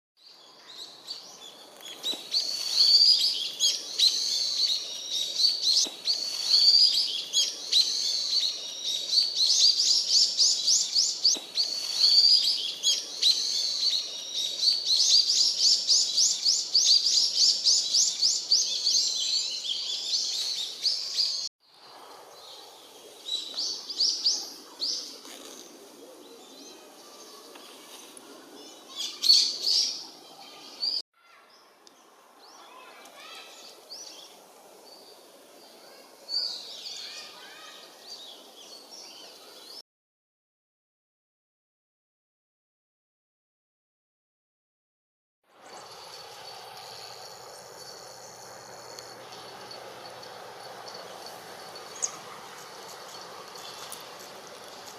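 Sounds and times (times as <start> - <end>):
bulbuls calling shrilly: 45.6 - 54.9.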